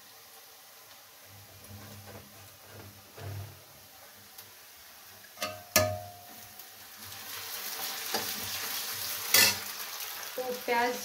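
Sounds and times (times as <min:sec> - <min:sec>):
onion sizzling in hot oil: 0:00.0 - 0:11.0
metal utensil clinking: 0:05.4 - 0:06.3.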